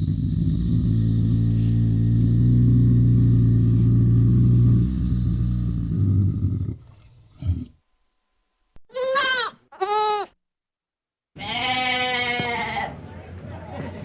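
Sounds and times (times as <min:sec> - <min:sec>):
low grunt: 0:00.0 - 0:07.8
low rumbling: 0:00.0 - 0:07.8
livestock bleating: 0:08.9 - 0:10.3, 0:11.4 - 0:13.0.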